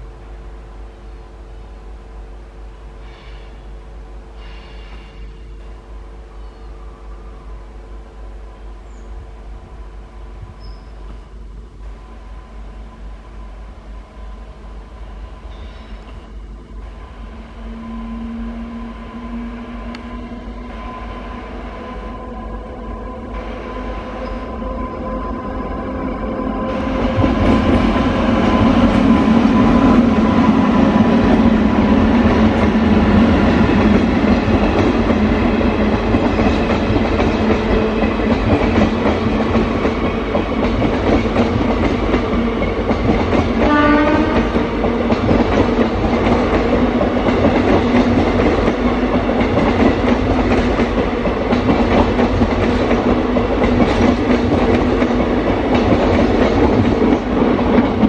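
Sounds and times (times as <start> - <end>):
train wheels rumbling on rail: 0.0 - 58.0
brief tone: 10.6 - 11.2, 12.7 - 16.4, 17.4 - 22.1.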